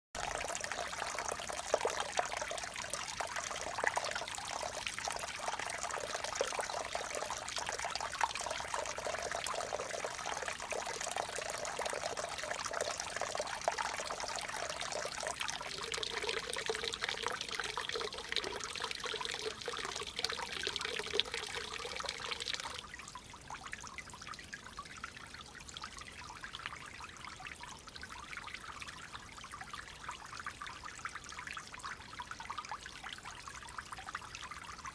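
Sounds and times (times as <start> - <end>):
water flowing: 0.2 - 22.9.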